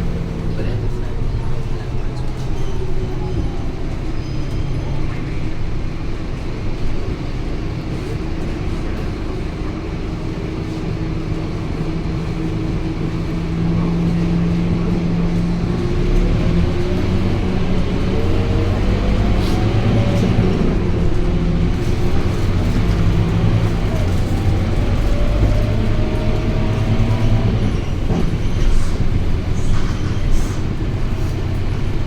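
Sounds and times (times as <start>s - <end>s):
bus diesel engine running: 0.0s - 32.0s.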